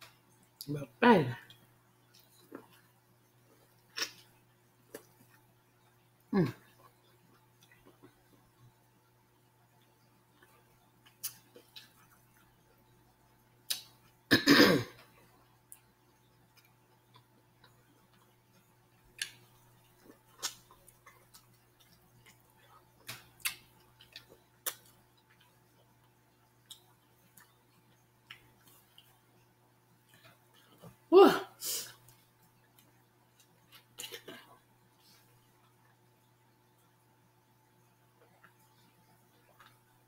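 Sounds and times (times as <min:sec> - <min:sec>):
wet chewing clicks and smacks: 0:09.8 - 0:12.8, 0:15.4 - 0:29.2.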